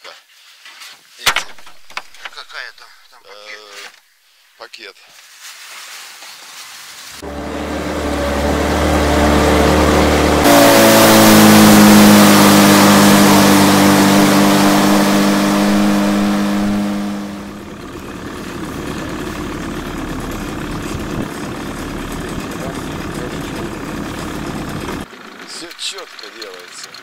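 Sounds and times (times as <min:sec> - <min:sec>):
car engine revving and idling: 0:07.2 - 0:25.1.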